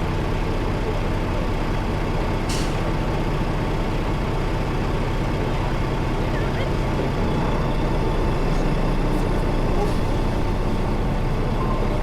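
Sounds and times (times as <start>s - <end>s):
truck diesel engine running: 0.0s - 12.0s
air brake hiss: 2.5s - 2.8s.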